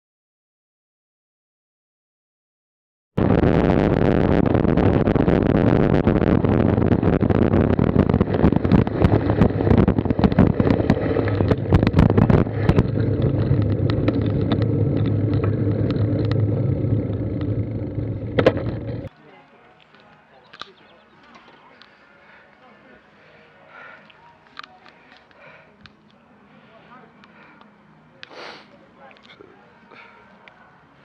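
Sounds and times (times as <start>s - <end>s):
wind and road noise rushing: 3.2s - 19.1s
rattles and clicks from road: 4.4s - 19.2s.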